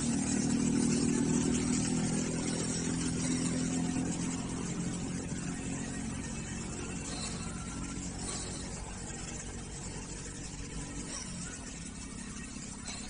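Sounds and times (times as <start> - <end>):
rc car motor running: 0.0 - 13.0.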